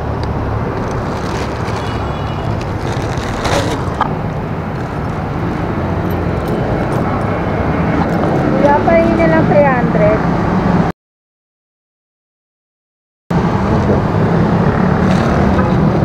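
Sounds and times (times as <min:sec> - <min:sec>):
street traffic: 0:00.0 - 0:10.9, 0:13.3 - 0:16.0
plastic bag rustling: 0:00.7 - 0:06.5.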